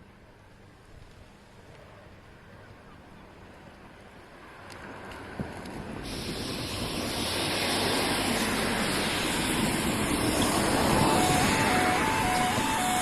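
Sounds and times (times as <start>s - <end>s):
approaching train: 0.0s - 13.0s
two-tone warning alarm: 10.3s - 13.0s.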